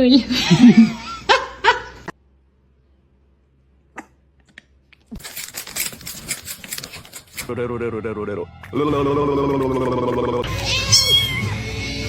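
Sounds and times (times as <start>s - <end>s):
cat meowing: 10.4s - 11.7s.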